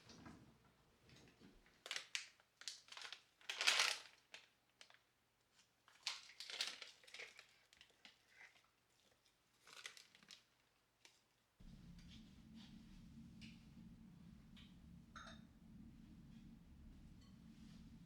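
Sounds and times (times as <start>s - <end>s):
crinkling and rustling: 0.0s - 13.6s.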